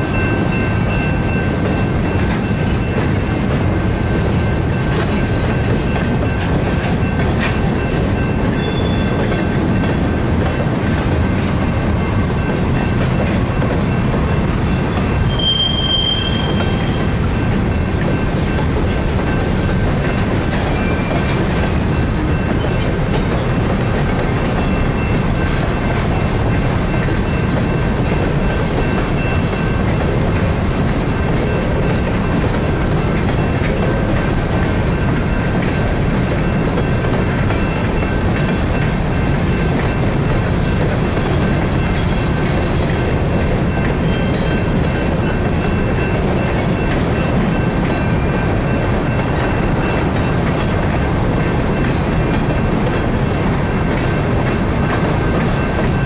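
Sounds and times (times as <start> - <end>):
freight train wheels rumbling on rails: 0.0 - 56.0
high wheel squeal: 8.5 - 9.2, 15.2 - 17.1.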